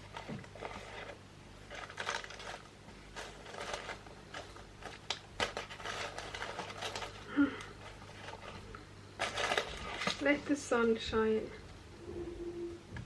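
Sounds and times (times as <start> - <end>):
cardboard box rustling: 0.0 - 7.2, 7.8 - 10.4.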